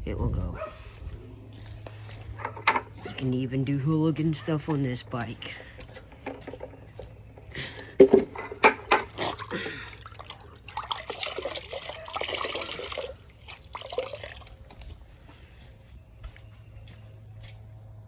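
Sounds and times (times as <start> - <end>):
sharp knocks and clatter: 8.0 - 9.1.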